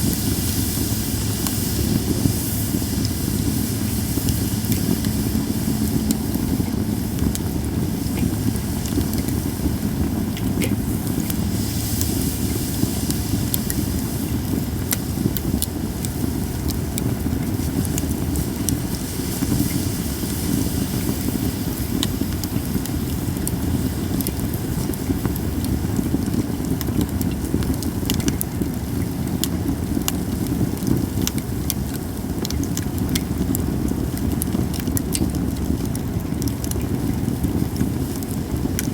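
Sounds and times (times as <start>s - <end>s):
low rumble: 0.0s - 24.7s
campfire crackling: 0.0s - 38.9s
sharp pops and snaps: 22.0s - 38.9s.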